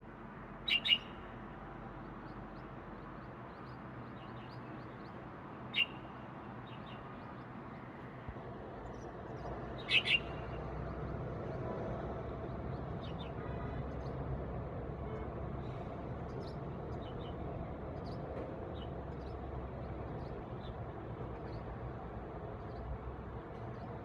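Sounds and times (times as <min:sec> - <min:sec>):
small bird chirping: 0:00.6 - 0:01.2, 0:03.6 - 0:06.1, 0:09.8 - 0:10.4.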